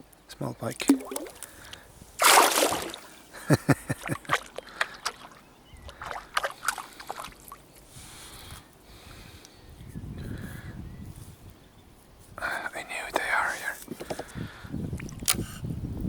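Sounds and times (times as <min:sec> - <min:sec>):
loud water splash: 0:00.8 - 0:01.4, 0:02.2 - 0:03.2.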